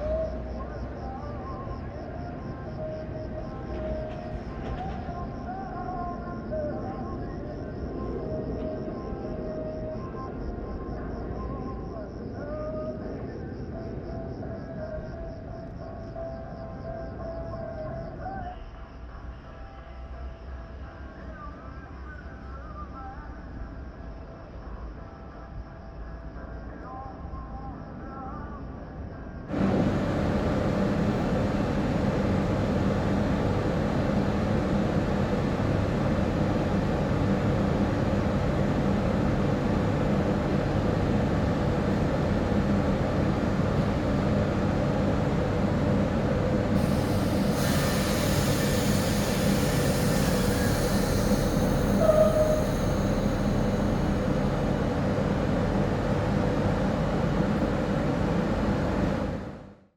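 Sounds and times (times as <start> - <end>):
train rumbling on track: 0.0 - 18.4, 29.5 - 59.9
high-pitched train squeal: 46.8 - 55.3.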